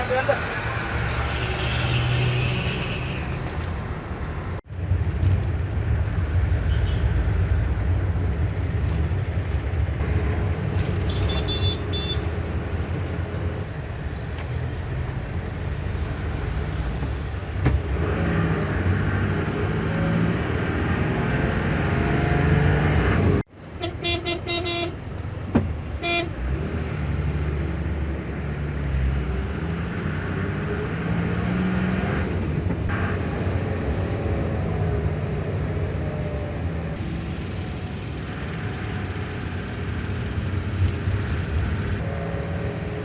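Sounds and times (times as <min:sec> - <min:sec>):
road traffic engines: 0:00.0 - 0:43.0
vehicle horn short blasts: 0:11.1 - 0:12.2, 0:23.8 - 0:25.0, 0:26.0 - 0:26.3.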